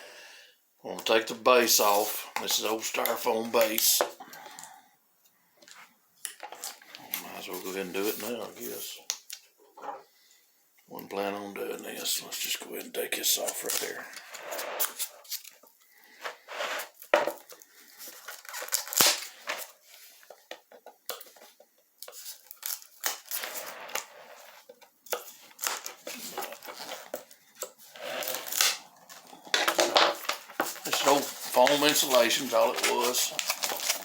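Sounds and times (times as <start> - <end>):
styrofoam crunching and tearing: 18.0 - 19.8, 22.3 - 24.1, 25.4 - 34.0.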